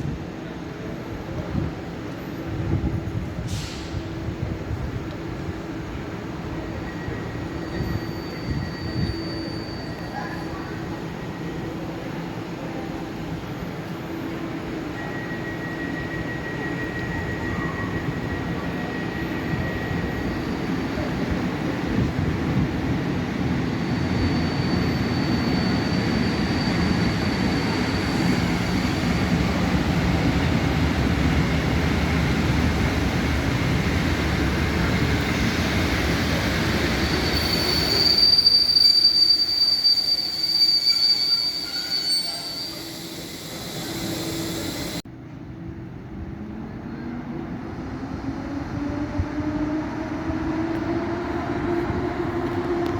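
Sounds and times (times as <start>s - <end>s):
train rumbling past on rails: 0.0s - 52.9s
high-pitched wheel squeal: 6.8s - 10.8s, 23.8s - 29.0s, 36.5s - 45.0s.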